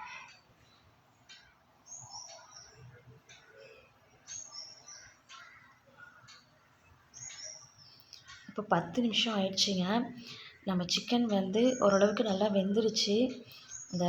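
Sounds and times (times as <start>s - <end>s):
faint bird chirps: 0.0s - 10.8s
soft ticks: 0.2s - 6.6s.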